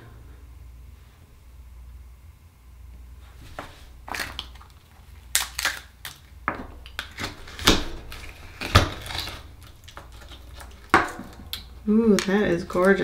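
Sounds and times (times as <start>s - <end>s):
oyster shell cracking: 4.1s - 13.0s.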